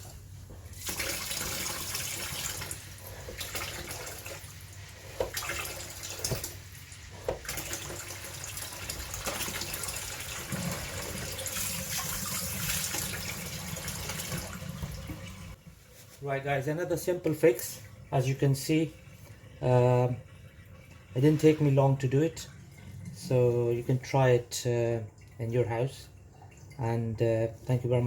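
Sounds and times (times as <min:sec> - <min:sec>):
tap water running into sink: 0:00.0 - 0:15.6.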